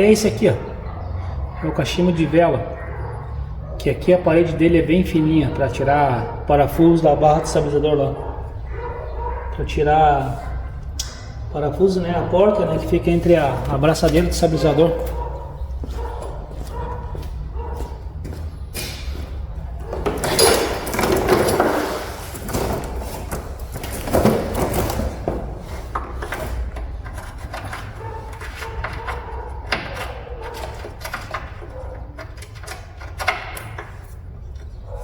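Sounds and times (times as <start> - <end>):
hand tools clicking and knocking: 18.8 - 35.0
scraping and rattling: 18.9 - 35.0.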